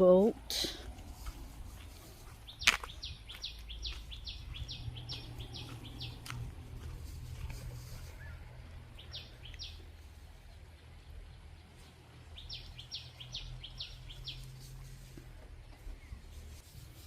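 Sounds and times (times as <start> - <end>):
steady low rumble: 0.3 - 12.9
bird chirping: 2.1 - 15.1.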